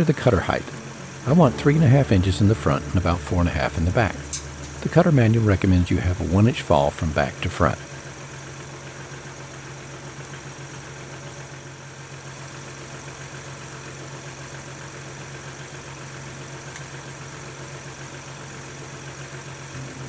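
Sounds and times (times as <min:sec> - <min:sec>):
tractor diesel engine idling: 0:00.0 - 0:20.0.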